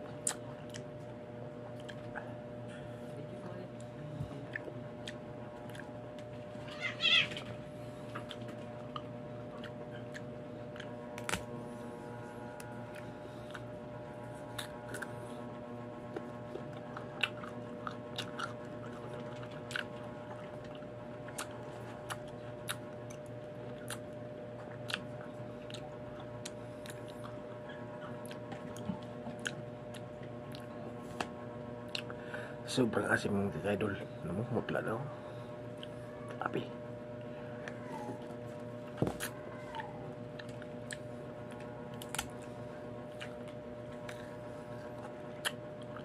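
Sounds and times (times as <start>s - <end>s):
background hum: 0.0s - 46.0s
crunchy chewing: 0.1s - 2.5s, 4.5s - 31.0s, 31.8s - 32.2s, 39.1s - 46.0s.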